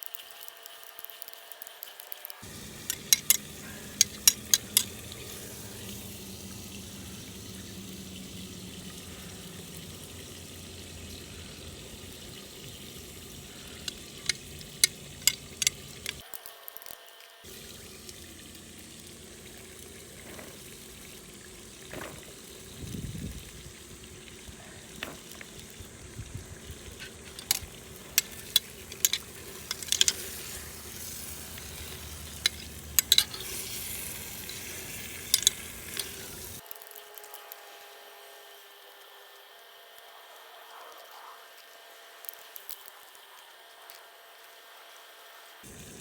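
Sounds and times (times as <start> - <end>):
food sizzling in a pot: 0.0 - 36.7, 45.6 - 46.0
utensil clinking against pot: 2.4 - 16.2, 27.0 - 36.6.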